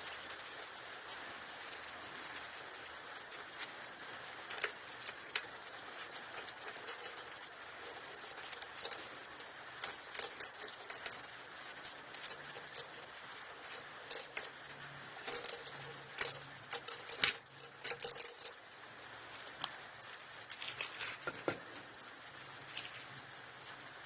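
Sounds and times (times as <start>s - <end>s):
metal tools clinking: 4.4s - 18.6s, 20.4s - 21.8s.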